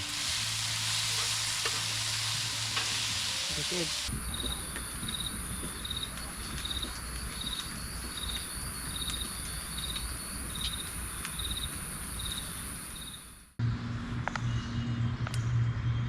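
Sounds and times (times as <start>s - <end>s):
insects buzzing: 0.0s - 13.5s
insect pulsed chirp: 7.4s - 13.4s.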